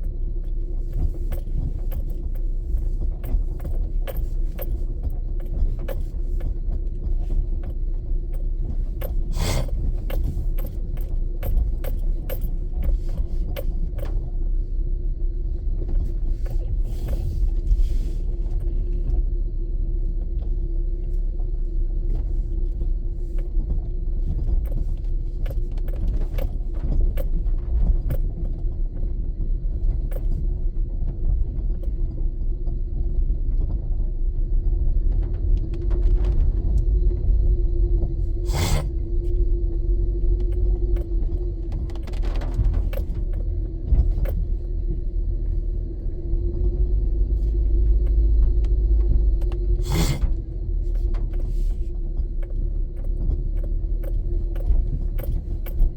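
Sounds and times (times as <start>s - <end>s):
car rumbling on road: 0.0s - 55.9s
small ticks and knocks: 0.4s - 14.2s, 22.9s - 28.8s, 40.3s - 45.4s, 46.5s - 55.9s.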